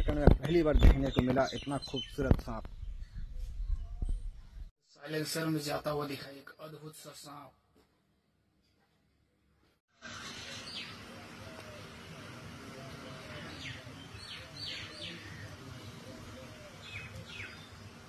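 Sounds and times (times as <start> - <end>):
birds chirping: 0.0 - 4.7, 10.0 - 18.0
outdoor background hiss: 4.9 - 7.6, 9.9 - 18.0.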